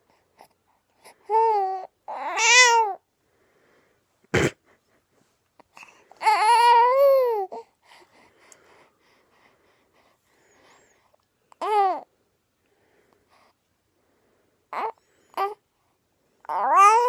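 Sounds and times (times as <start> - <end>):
infant cooing and squealing: 1.3 - 3.0, 6.2 - 7.6, 16.5 - 17.0.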